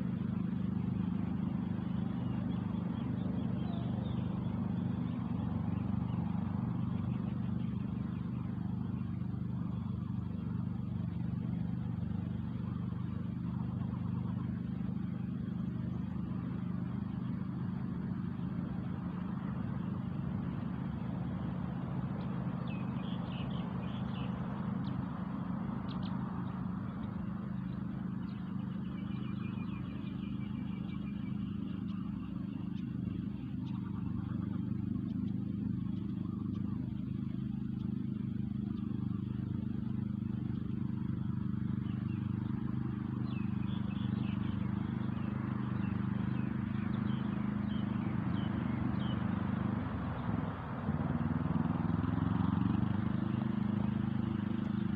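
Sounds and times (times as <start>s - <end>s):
engine humming: 0.0s - 54.9s
faint high chirps: 1.6s - 9.4s.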